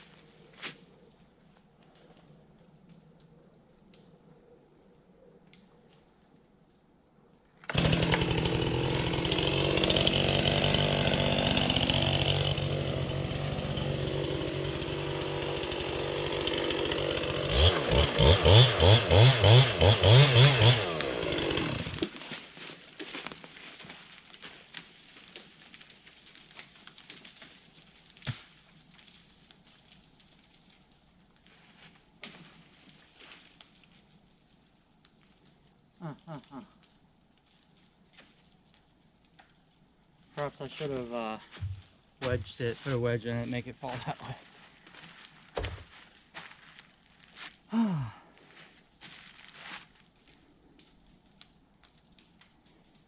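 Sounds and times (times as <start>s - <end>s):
chainsaw cutting and revving: 7.7s - 22.2s.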